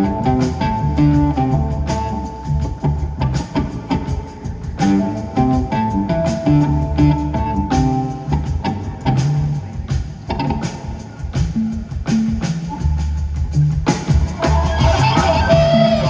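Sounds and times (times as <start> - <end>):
bass notes: 0.0 - 16.0
drum beat: 0.0 - 16.0
held melodic notes: 14.2 - 16.0.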